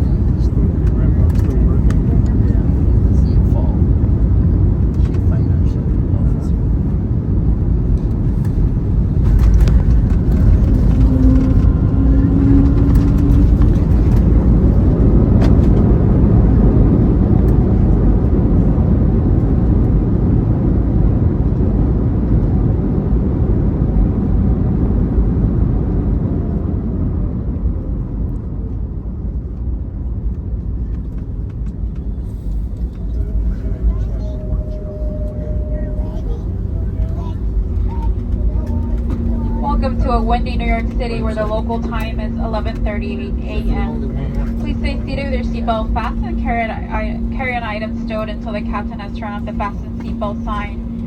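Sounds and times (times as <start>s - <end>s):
engine and runway roar: 0.0s - 51.0s
brief tone: 32.1s - 38.0s.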